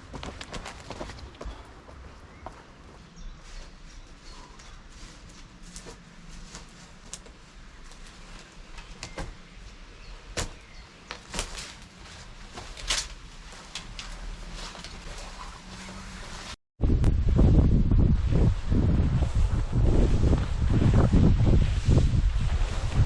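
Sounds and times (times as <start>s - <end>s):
twigs cracking: 0.0s - 1.8s, 4.6s - 9.4s, 10.2s - 16.0s
footsteps crunching on forest floor: 0.0s - 7.2s.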